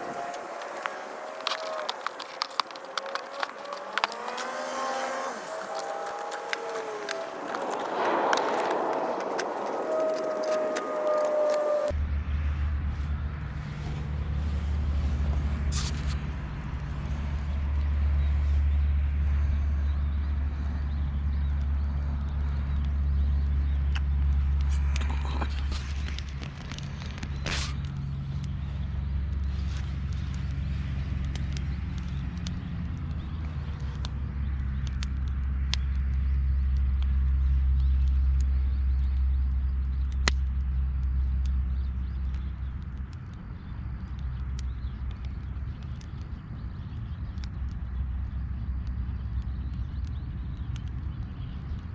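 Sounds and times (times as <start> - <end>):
sharp crackles: 0.0 - 11.9, 15.3 - 18.6, 21.4 - 51.9
low rumble: 0.0 - 15.7.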